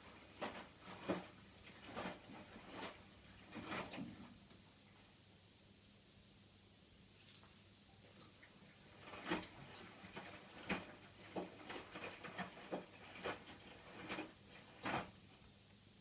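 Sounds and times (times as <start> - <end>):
washing machine humming: 0.0 - 4.6, 8.3 - 15.6.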